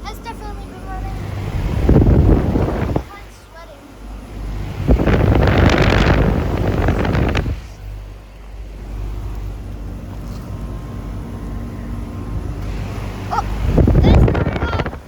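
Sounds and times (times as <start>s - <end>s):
air conditioner compressor hum: 0.0s - 15.0s
air rush on microphone: 0.5s - 8.2s, 12.2s - 15.0s.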